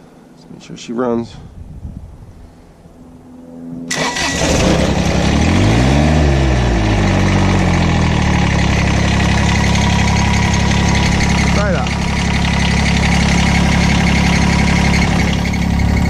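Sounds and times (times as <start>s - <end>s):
diesel engine starting and idling: 3.9s - 16.0s.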